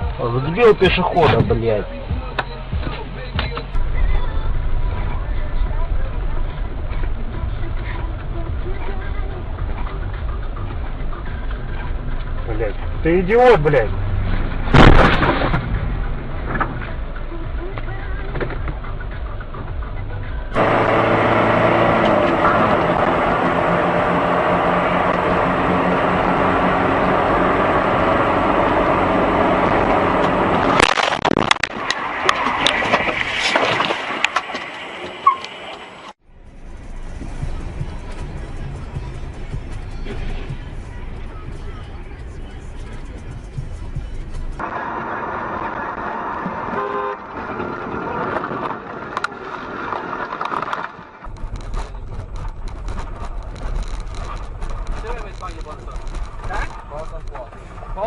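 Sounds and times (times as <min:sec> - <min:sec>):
car engine and road noise: 0:00.0 - 0:58.0
traffic noise: 0:00.0 - 0:58.0
loud crash: 0:14.4 - 0:16.8
car horn toot: 0:46.6 - 0:47.4.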